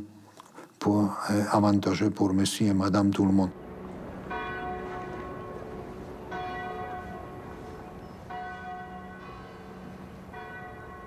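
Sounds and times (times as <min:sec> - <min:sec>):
church bell tolling: 0:03.5 - 0:11.0.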